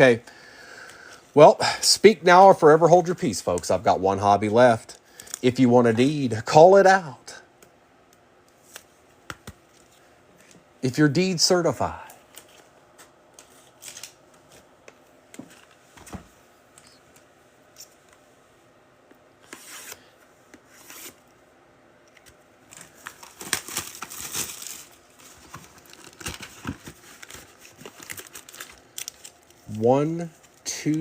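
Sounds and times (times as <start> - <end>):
plastic wrap tearing and crinkling: 22.7 - 29.6.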